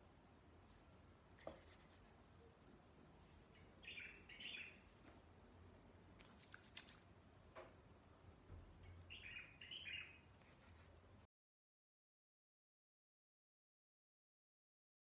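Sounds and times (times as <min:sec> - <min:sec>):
bird chirping faintly: 0:01.8 - 0:05.0, 0:08.6 - 0:10.6.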